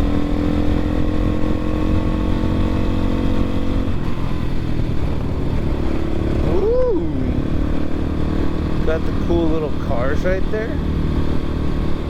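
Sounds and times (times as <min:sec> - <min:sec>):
wind noise rumble: 0:00.0 - 0:09.2
dirt bike engine running: 0:00.0 - 0:12.0.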